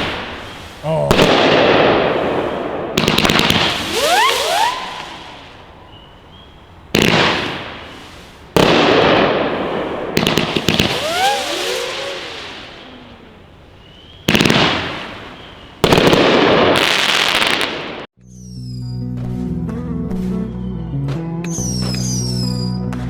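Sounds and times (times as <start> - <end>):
firework shots and breaks: 0.0 - 5.6, 6.9 - 13.5, 14.2 - 18.1
firework crackling: 0.0 - 5.8, 6.9 - 18.1
whizzing firework glides: 2.0 - 5.6, 7.0 - 13.5.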